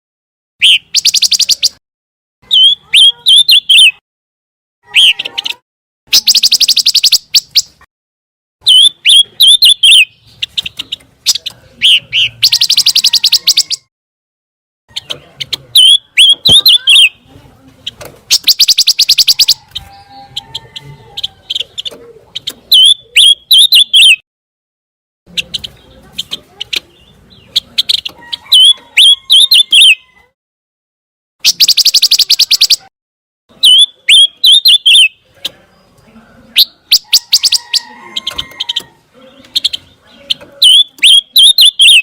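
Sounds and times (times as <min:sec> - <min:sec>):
songbird rattling trills and whistles: 0:00.6 - 0:01.8, 0:06.1 - 0:07.7, 0:08.7 - 0:13.8, 0:18.3 - 0:19.9, 0:31.4 - 0:32.9, 0:40.6 - 0:42.0.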